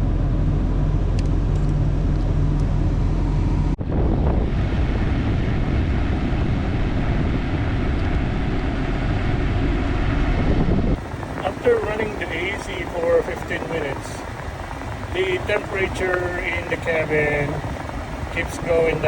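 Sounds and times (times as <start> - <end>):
air conditioner rushing: 0.0 - 19.0
pickup engine idling: 4.9 - 19.0.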